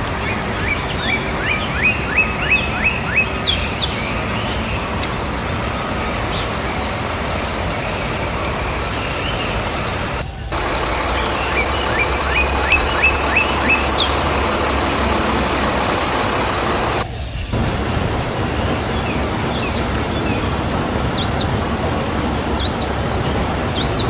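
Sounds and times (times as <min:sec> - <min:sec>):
noisy background: 0:00.0 - 0:24.0
small bird chirping: 0:07.6 - 0:24.0.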